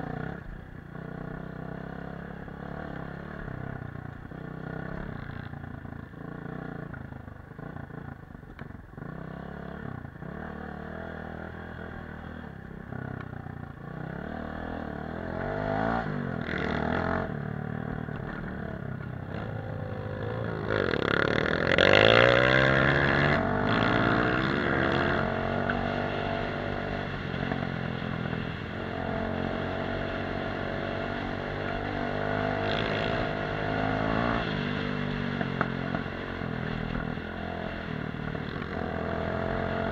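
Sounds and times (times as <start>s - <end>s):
off-road motorcycle engine revving: 0.0s - 39.9s.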